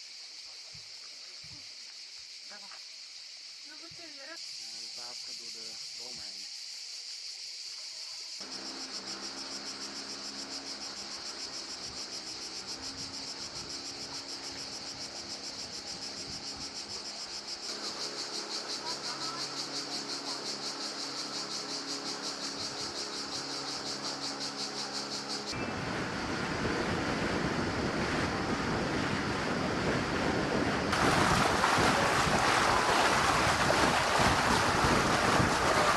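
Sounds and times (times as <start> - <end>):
insects shrilling: 1.5 - 25.6.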